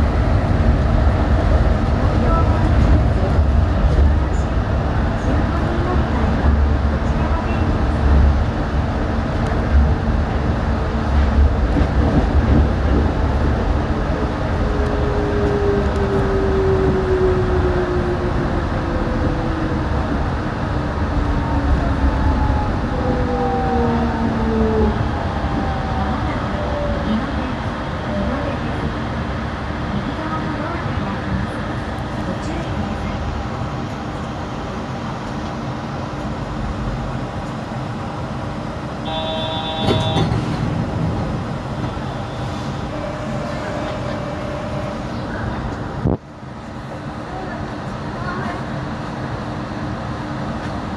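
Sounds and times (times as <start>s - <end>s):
train running rumble: 0.0s - 50.9s
brief high tone: 39.0s - 40.3s
train motor whine: 39.0s - 40.7s.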